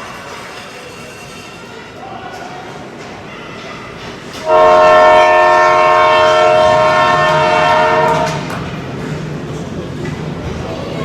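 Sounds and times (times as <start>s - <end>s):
scoreboard horn blaring: 4.5s - 8.4s.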